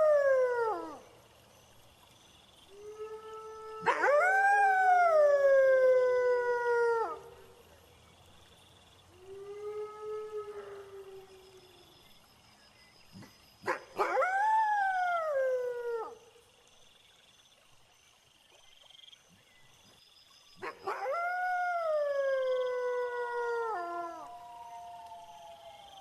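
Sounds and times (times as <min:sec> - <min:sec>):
crickets chirping: 0:00.0 - 0:26.0
wolf howling: 0:20.8 - 0:26.0.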